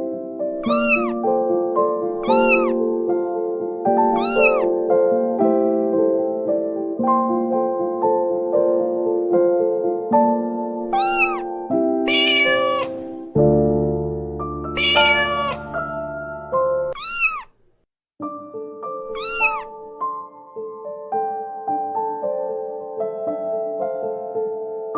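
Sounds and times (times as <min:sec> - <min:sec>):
soft piano music: 0:00.0 - 0:17.0, 0:18.2 - 0:24.9
kitten meowing: 0:00.6 - 0:01.2, 0:02.2 - 0:02.8, 0:04.0 - 0:04.8, 0:10.8 - 0:11.5, 0:12.1 - 0:13.2, 0:14.8 - 0:16.0, 0:16.9 - 0:17.6, 0:19.1 - 0:19.8.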